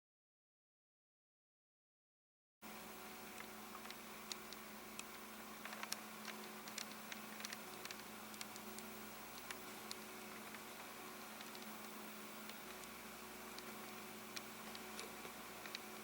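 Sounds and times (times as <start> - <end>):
electrical hum: 2.6 - 16.0
small clicks and ticks: 3.2 - 16.0.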